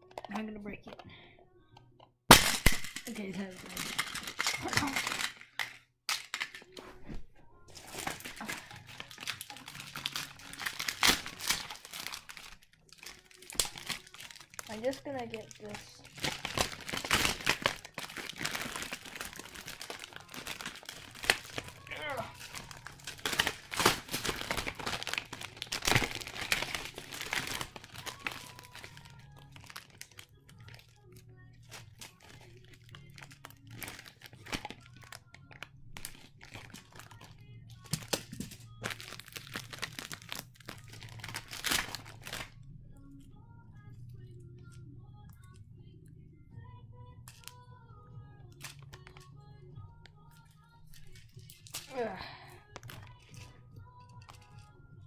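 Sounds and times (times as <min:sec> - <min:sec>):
plastic tiles clicking and snapping: 0:01.8 - 0:06.8
plastic tiles clattering and clicking: 0:02.3 - 0:06.8, 0:07.8 - 0:30.8.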